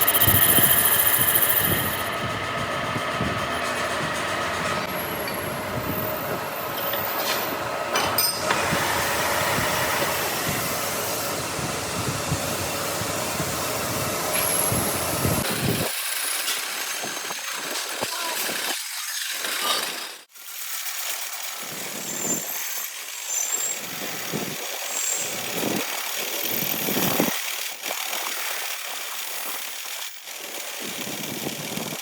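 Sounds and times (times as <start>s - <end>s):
workshop machinery noise: 0.0s - 20.4s.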